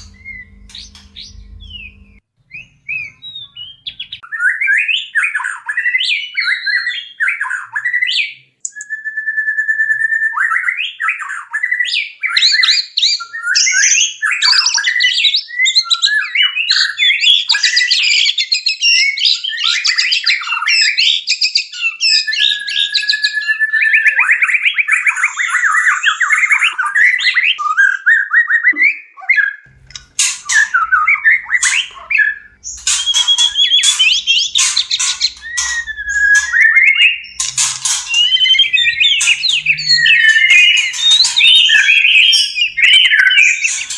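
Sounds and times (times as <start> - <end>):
faint low hum: 0.0 - 4.2
songbird singing whistles and trills: 0.0 - 43.9.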